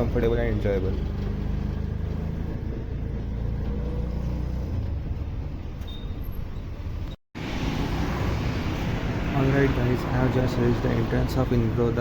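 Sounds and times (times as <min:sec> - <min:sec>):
auto-rickshaw engine running: 0:00.0 - 0:05.8
road rumble: 0:00.0 - 0:12.0.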